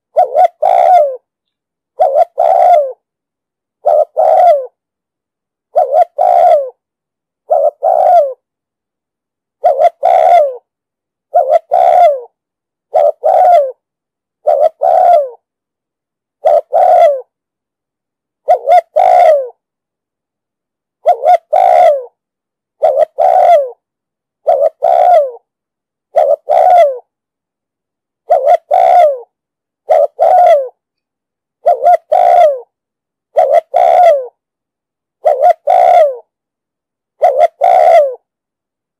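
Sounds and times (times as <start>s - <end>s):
dove cooing: 0.0s - 1.3s, 2.0s - 3.0s, 3.8s - 4.8s, 5.7s - 6.8s, 7.4s - 8.4s, 9.6s - 10.7s, 11.3s - 13.8s, 14.4s - 15.4s, 16.4s - 17.3s, 18.4s - 19.6s, 21.0s - 22.2s, 22.8s - 23.8s, 24.4s - 25.4s, 26.1s - 27.1s, 28.2s - 30.8s, 31.6s - 32.7s, 33.3s - 34.4s, 35.2s - 36.3s, 37.2s - 38.3s.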